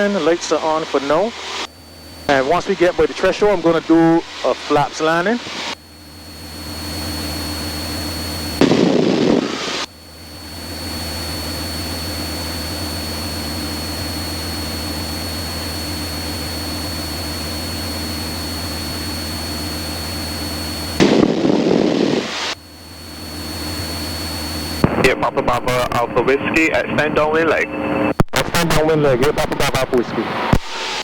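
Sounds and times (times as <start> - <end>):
propeller engine droning: 0.0 - 31.0
loud crackly bursts: 8.4 - 9.9, 20.9 - 22.6.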